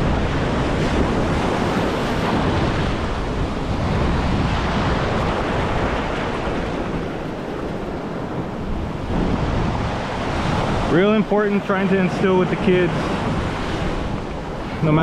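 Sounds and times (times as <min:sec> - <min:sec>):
ocean surf breaking: 0:00.0 - 0:15.0
wind on microphone: 0:00.0 - 0:15.0.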